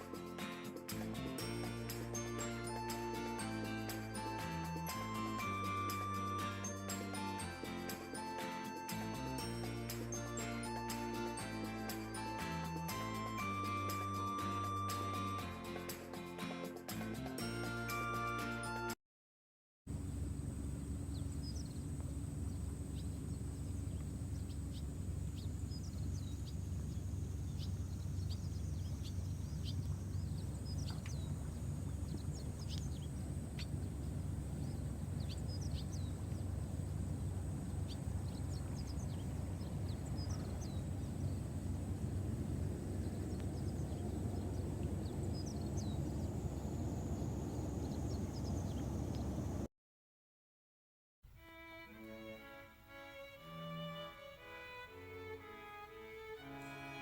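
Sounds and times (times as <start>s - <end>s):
low rumble: 19.9s - 49.7s
small birds chirping: 20.0s - 49.7s.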